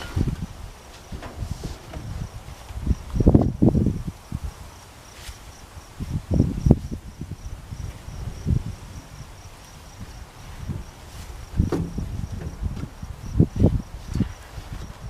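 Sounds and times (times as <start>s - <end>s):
cricket chirping: 1.9s - 15.0s
low dull thumps: 10.6s - 13.6s.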